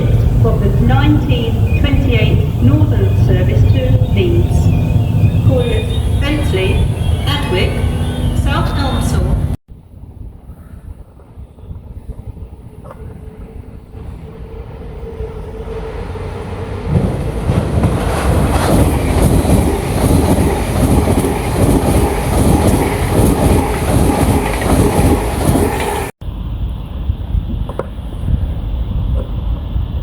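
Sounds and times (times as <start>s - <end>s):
train passing: 0.0s - 26.4s
wheels clattering on rails: 16.8s - 26.1s.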